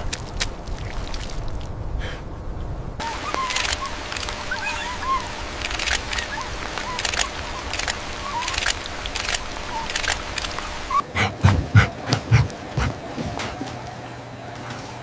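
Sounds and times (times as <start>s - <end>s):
high squeaking animal calls: 3.0s - 11.9s.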